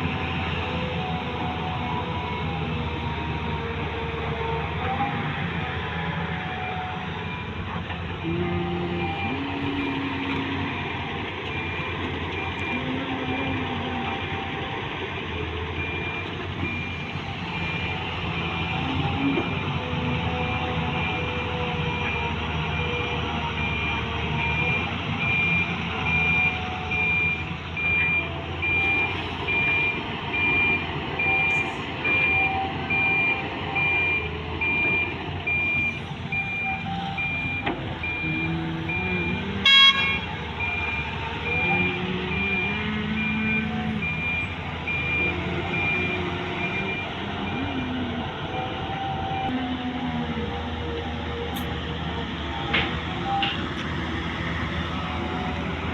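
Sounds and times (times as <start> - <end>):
excavator diesel engine under load: 0.0 - 55.9
electronic warning alarm beeping: 23.6 - 47.9
horn toot: 39.6 - 40.3.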